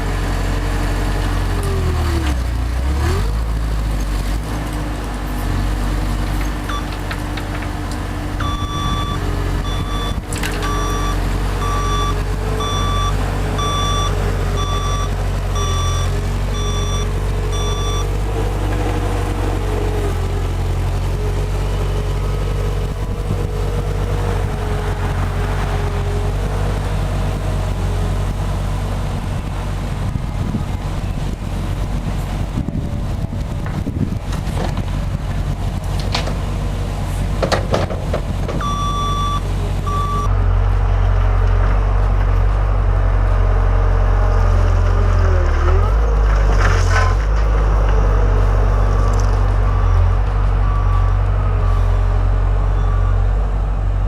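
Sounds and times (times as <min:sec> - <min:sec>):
diesel engine running: 0:00.0 - 0:54.0
reversing alarm beeps: 0:08.4 - 0:18.1, 0:38.6 - 0:40.3.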